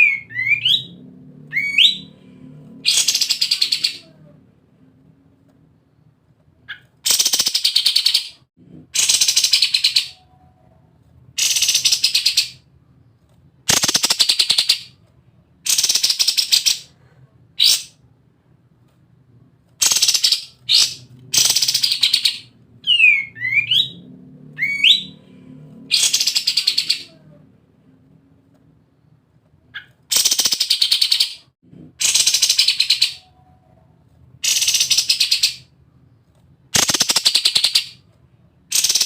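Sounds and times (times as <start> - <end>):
bird singing in rattling bursts: 29.8 - 31.4, 38.7 - 39.0.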